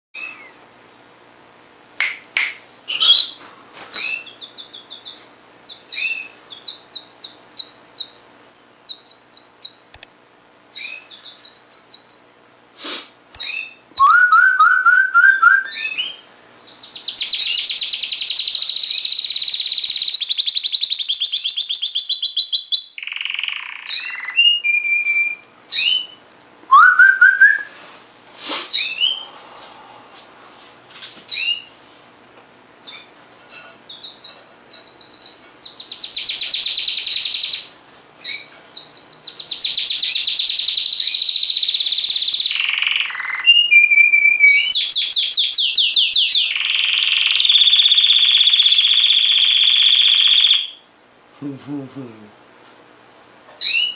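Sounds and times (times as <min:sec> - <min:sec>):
canary singing: 0:00.2 - 0:00.6, 0:02.9 - 0:10.0, 0:10.7 - 0:12.4, 0:13.4 - 0:27.7, 0:28.7 - 0:29.3, 0:31.3 - 0:31.8, 0:33.9 - 0:50.9, 0:53.6 - 0:53.9.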